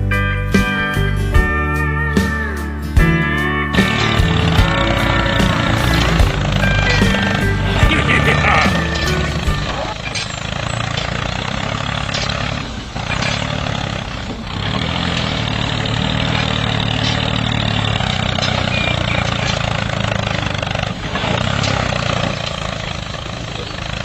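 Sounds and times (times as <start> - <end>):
engine running steadily: 3.0 - 24.0
faint clicks: 8.7 - 24.0.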